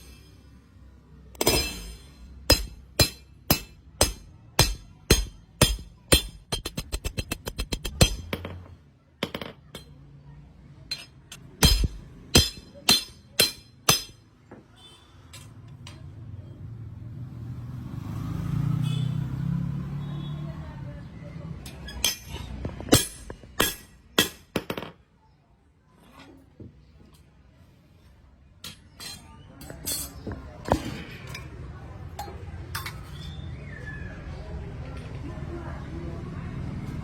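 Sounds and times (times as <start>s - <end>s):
hammer striking metal on anvil: 1.4s - 10.0s, 10.9s - 14.3s, 21.9s - 24.9s.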